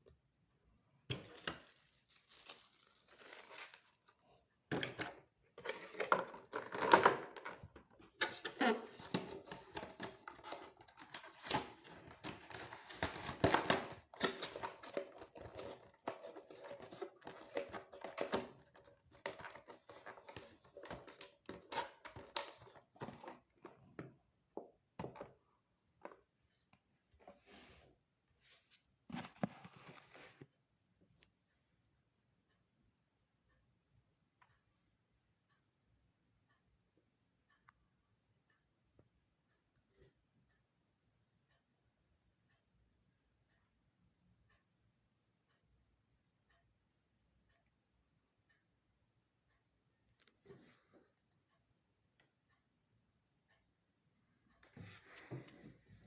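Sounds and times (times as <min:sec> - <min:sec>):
packaging crinkling and tearing: 0:01.4 - 0:04.2.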